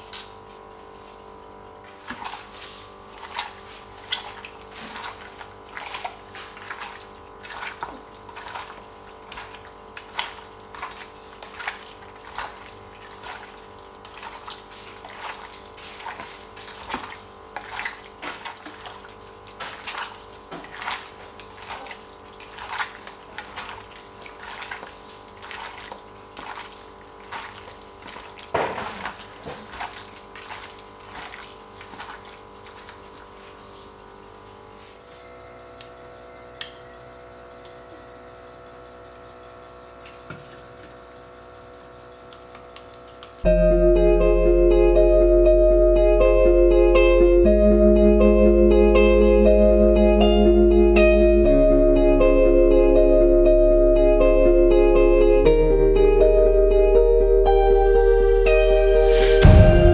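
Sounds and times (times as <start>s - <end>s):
water splashing: 2.0s - 33.6s, 58.0s - 59.9s
steady hum: 43.4s - 59.9s.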